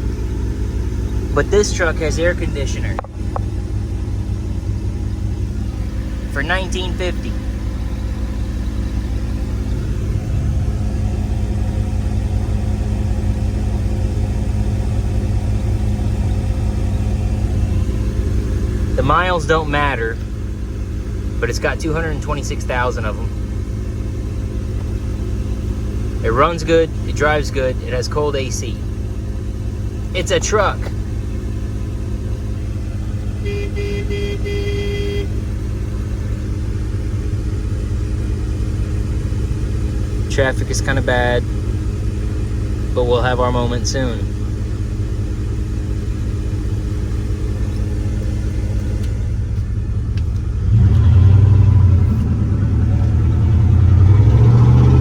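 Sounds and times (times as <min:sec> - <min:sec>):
truck exhaust rumble: 0:00.0 - 0:55.0
car horn honking: 0:05.6 - 0:11.2, 0:33.2 - 0:36.1.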